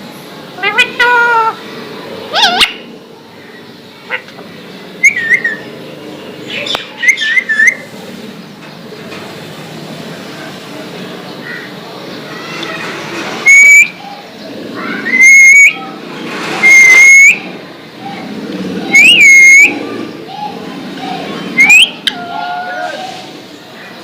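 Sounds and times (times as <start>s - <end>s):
parakeet shrill whistled calls: 13.4s - 13.9s, 15.1s - 15.8s, 16.6s - 17.4s.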